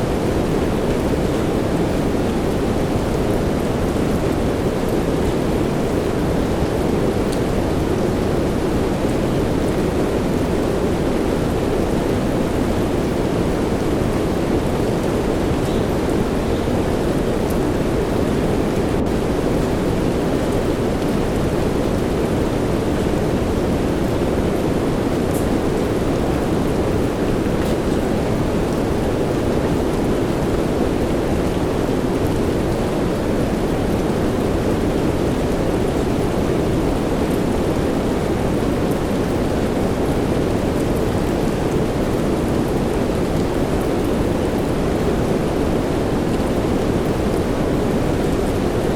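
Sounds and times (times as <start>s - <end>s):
steady soft rain: 0.0s - 48.9s
white noise: 0.0s - 48.9s.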